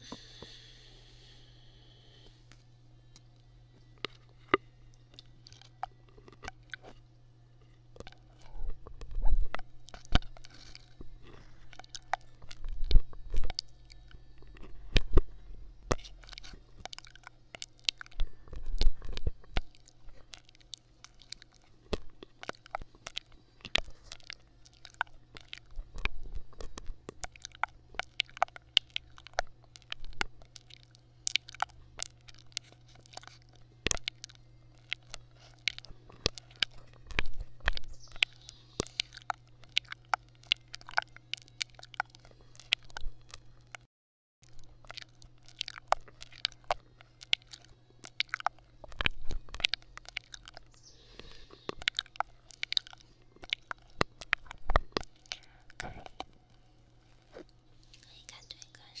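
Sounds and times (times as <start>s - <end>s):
steady low hum: 0.0s - 59.0s
crackling clicks: 8.0s - 59.0s.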